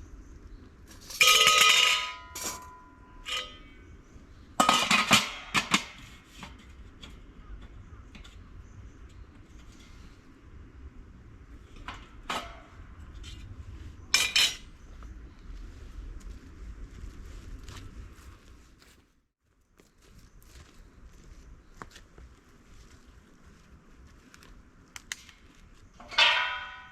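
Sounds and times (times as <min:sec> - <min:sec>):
metal pieces clanking: 0:01.0 - 0:03.7, 0:14.2 - 0:14.6, 0:26.0 - 0:26.9.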